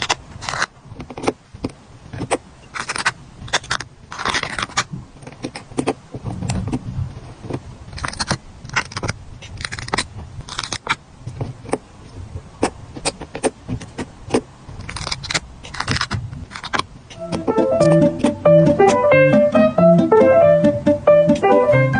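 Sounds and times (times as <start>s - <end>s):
stickers being peeled: 0.0s - 6.7s, 7.9s - 11.0s, 13.0s - 19.0s.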